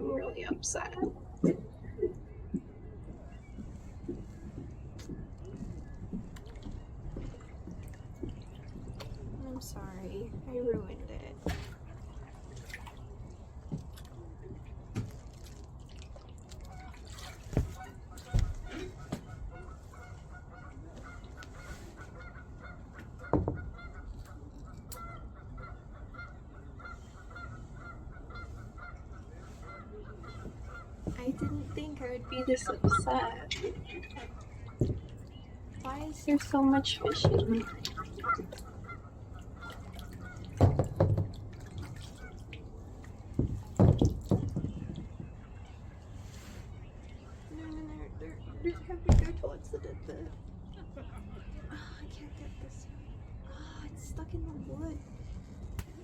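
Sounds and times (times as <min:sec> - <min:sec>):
kayak paddle splashing water: 0:10.5 - 0:25.4, 0:26.2 - 0:47.4
geese honking: 0:25.0 - 0:35.0, 0:36.2 - 0:40.6.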